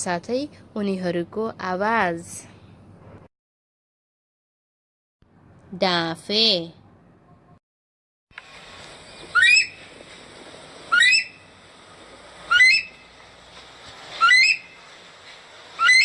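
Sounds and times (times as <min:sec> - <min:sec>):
steady background hiss: 0:08.4 - 0:16.0
bird whistling upward: 0:09.2 - 0:09.8, 0:10.9 - 0:11.4, 0:12.5 - 0:13.0, 0:14.2 - 0:14.7, 0:15.8 - 0:16.0.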